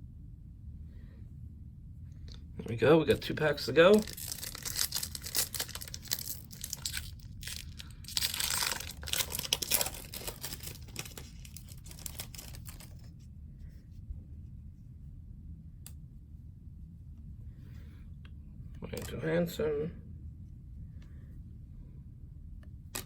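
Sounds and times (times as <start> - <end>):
wrapper tearing and crinkling: 3.8 - 13.1.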